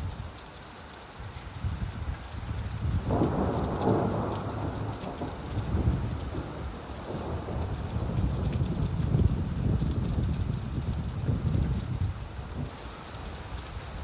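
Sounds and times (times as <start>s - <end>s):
rain falling: 0.0s - 14.0s
thunder rumbling: 3.0s - 12.7s.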